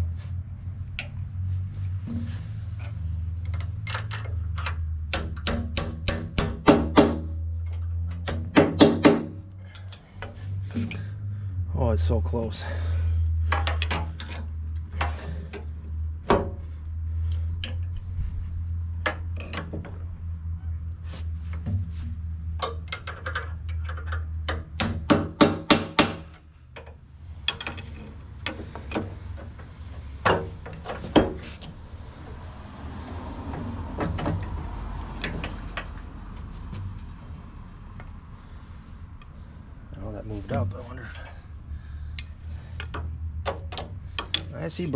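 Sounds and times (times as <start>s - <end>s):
low steady hum: 0.0s - 44.9s
hand tools clanking on steel: 13.4s - 15.7s, 22.6s - 31.7s, 42.1s - 44.7s.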